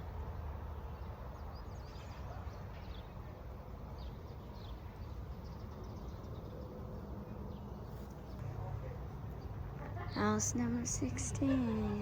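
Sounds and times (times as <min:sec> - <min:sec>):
small birds chirping: 0:04.0 - 0:12.0
low outdoor rumble: 0:08.4 - 0:12.0.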